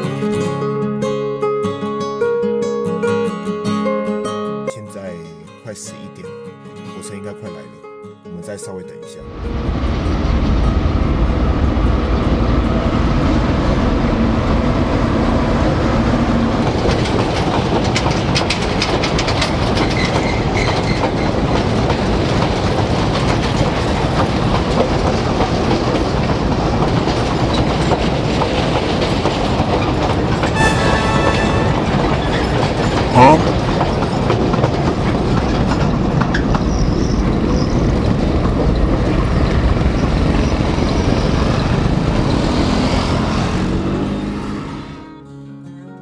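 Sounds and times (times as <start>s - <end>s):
train rumbling past: 9.2s - 44.6s
wheels clattering over rail joints: 9.4s - 30.6s, 32.2s - 44.3s.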